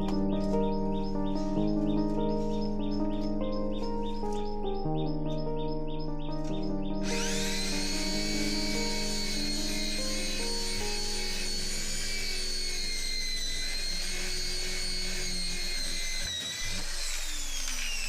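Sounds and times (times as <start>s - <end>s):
power tool motor whining: 6.5s - 18.0s.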